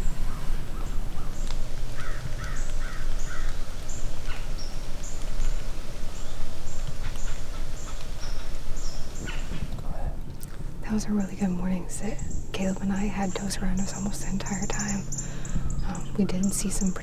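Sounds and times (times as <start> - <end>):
low outdoor rumble: 0.0 - 17.0
crow cawing: 2.0 - 3.6, 15.2 - 16.0.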